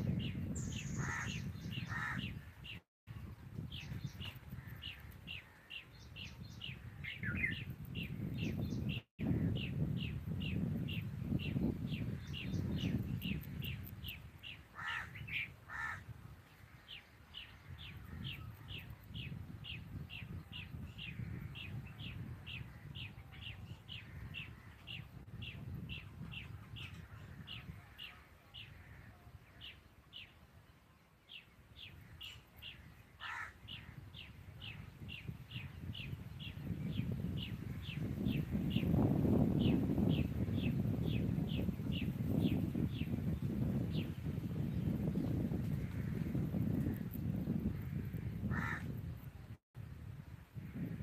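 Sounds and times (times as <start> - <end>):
wind rumble on microphone: 0.0 - 51.0
harsh crow-like calls: 1.0 - 2.3, 14.7 - 16.1, 33.2 - 34.0, 47.8 - 49.0.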